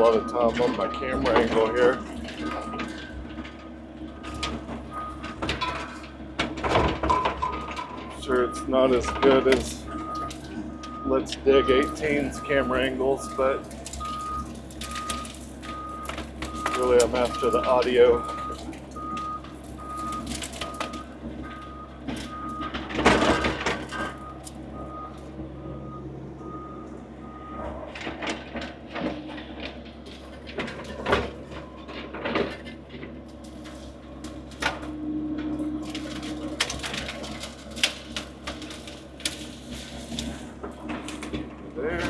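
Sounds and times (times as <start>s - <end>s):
skid steer engine running: 0.0s - 42.0s
machine knocks and clanks: 0.5s - 11.0s
backup alarm beeping: 7.2s - 27.8s.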